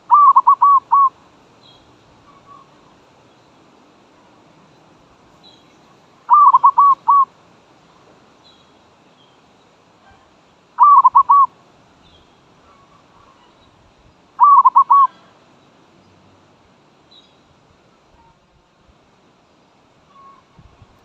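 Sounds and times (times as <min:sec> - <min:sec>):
dove cooing: 0:00.0 - 0:01.2, 0:06.3 - 0:07.3, 0:10.8 - 0:11.5, 0:14.4 - 0:15.2.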